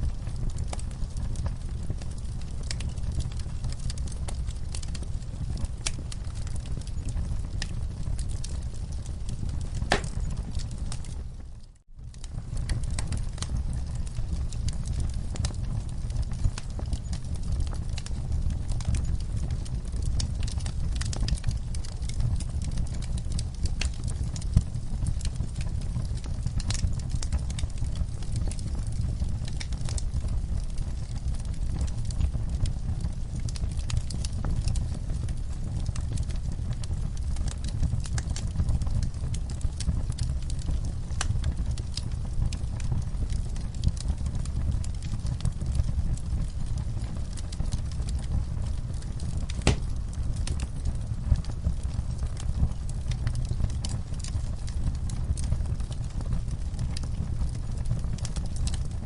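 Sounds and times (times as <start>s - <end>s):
fire low rumble: 0.0s - 59.0s
wood fire crackling: 0.0s - 59.0s
sharp pop of fire: 9.9s - 10.3s, 49.6s - 50.0s.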